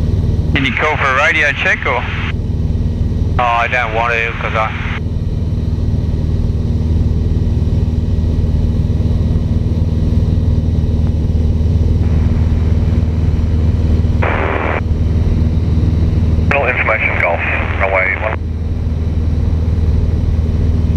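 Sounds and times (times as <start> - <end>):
airplane engine and propeller drone: 0.0 - 20.9
radio hiss: 0.6 - 2.3, 3.4 - 5.0, 14.2 - 14.8, 16.5 - 18.4.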